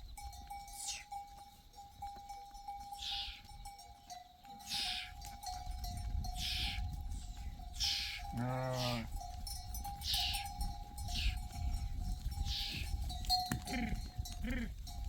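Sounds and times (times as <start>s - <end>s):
animal bleating: 4.7s - 5.2s, 7.8s - 9.2s.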